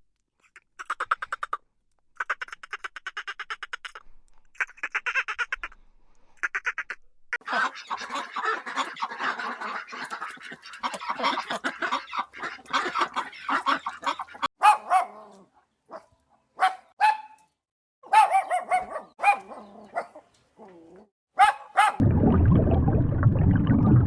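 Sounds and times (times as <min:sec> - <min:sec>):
dogs barking: 0:07.4 - 0:15.3, 0:15.9 - 0:17.4, 0:18.0 - 0:20.3, 0:21.4 - 0:22.0.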